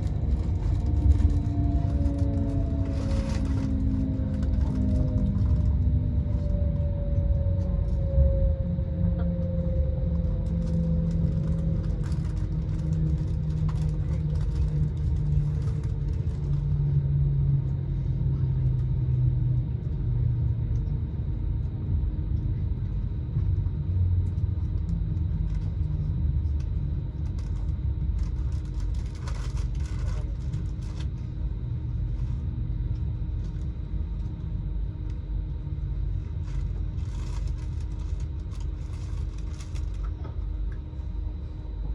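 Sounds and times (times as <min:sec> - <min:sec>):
falling whine: 0:00.0 - 0:13.7
vehicle engine rumble: 0:00.0 - 0:41.9.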